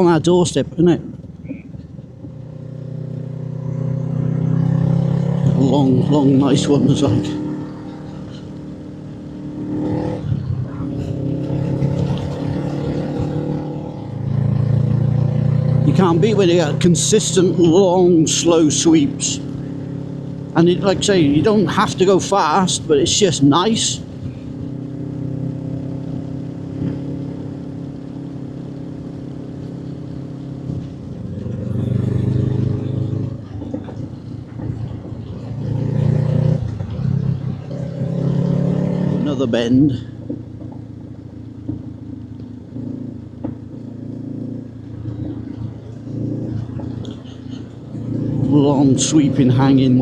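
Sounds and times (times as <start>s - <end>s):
motorcycle engine cruising: 0.0s - 50.0s.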